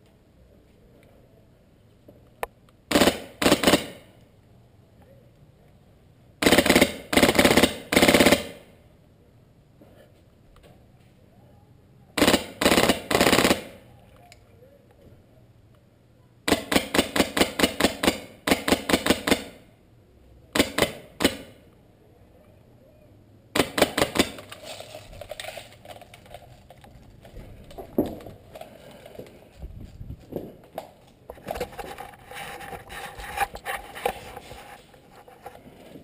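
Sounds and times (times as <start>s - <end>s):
airsoft gun firing bursts: 2.9s - 4.1s, 6.4s - 8.7s, 12.2s - 13.8s, 16.5s - 19.7s, 20.6s - 21.6s, 23.6s - 24.6s.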